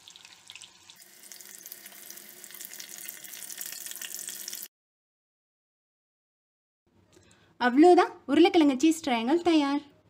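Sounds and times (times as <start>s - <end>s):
food sizzling in hot oil: 0.0s - 4.7s.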